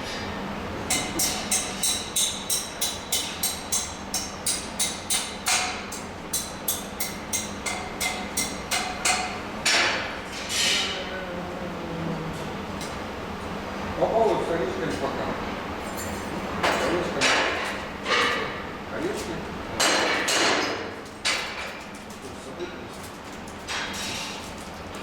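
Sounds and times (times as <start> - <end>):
hammer tapping on metal: 0.9 - 10.1, 19.8 - 21.7.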